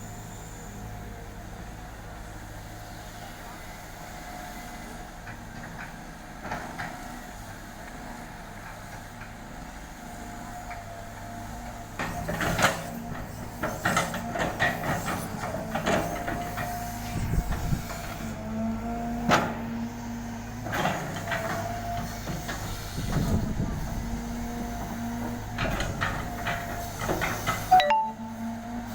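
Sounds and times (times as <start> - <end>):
excavator clanks and knocks: 5.2 - 7.2, 8.5 - 17.8, 19.2 - 19.7, 20.6 - 28.1.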